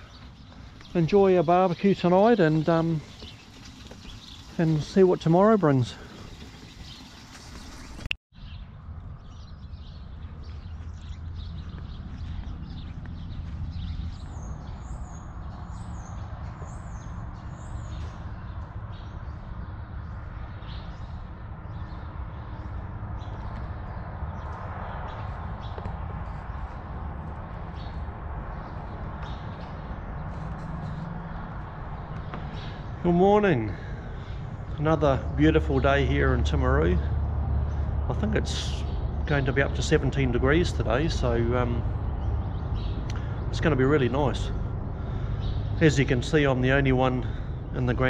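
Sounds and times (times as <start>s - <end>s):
small birds chirping: 0.0s - 48.0s
low outdoor rumble: 8.6s - 48.0s.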